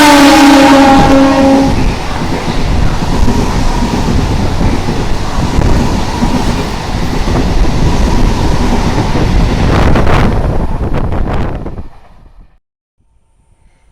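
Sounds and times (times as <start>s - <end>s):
train wheels rumbling on track: 0.0s - 13.9s.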